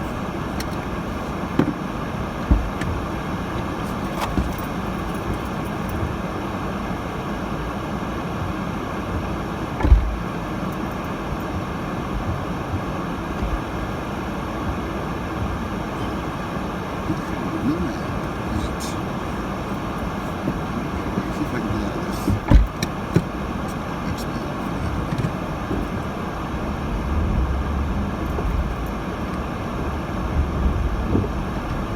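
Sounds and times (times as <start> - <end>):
road and tyre noise in car: 0.0 - 31.9
short low thumps: 2.4 - 3.7.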